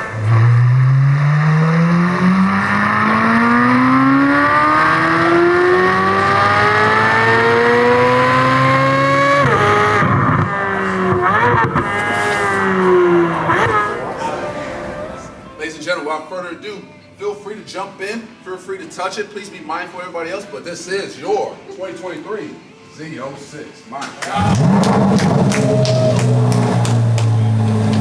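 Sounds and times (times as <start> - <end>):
car engine at full throttle: 0.0 - 15.4, 24.4 - 28.0.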